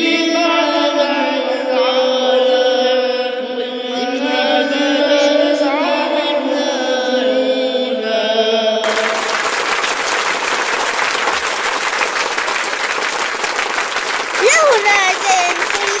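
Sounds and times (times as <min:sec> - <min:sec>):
voices singing a chant: 0:00.0 - 0:09.4
applause: 0:08.8 - 0:16.0.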